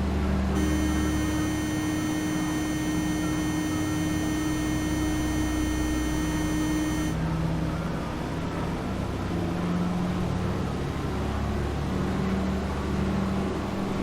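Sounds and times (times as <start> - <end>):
thin high whine: 0.6 - 7.2
propeller engines droning: 0.6 - 7.3.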